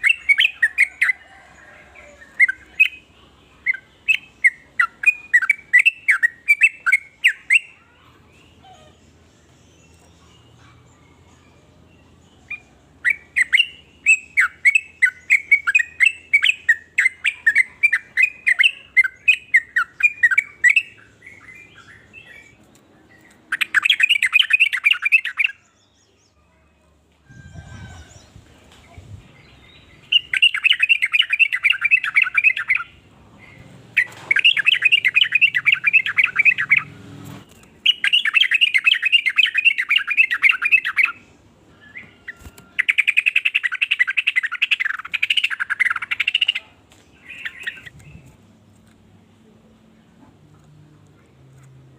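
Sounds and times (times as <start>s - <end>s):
bird quick chirps: 33.5s - 41.1s.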